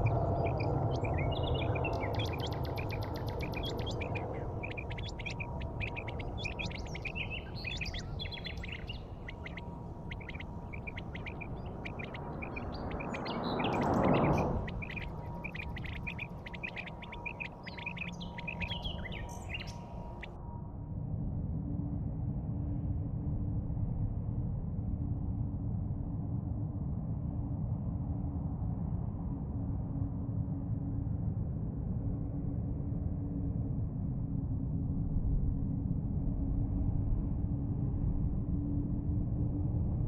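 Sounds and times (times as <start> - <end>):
small birds chirping: 0.0 - 20.3
low steady rumble: 0.0 - 40.0.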